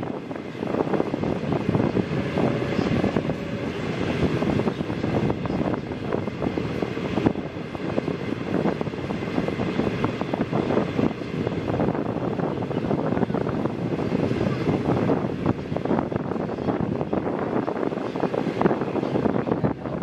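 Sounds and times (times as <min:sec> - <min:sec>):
train wheels rumbling on rail: 0:00.0 - 0:20.0
wind rush: 0:00.0 - 0:20.0.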